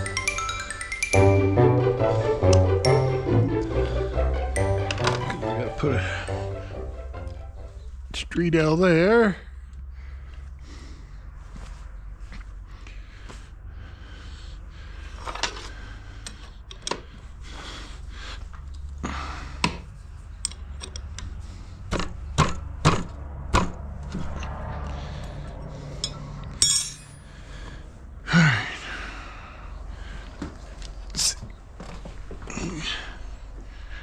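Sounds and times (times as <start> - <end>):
metal pipe fittings clinking: 26.0 - 27.2.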